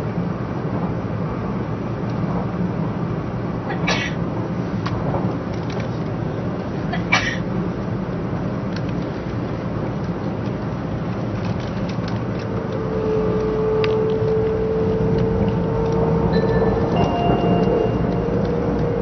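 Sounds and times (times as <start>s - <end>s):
train cabin rumble: 0.0s - 19.0s
steady humming tone: 12.4s - 19.0s.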